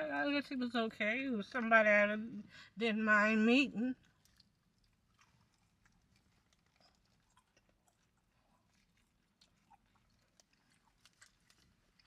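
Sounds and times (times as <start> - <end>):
people chewing food: 3.9 - 12.0.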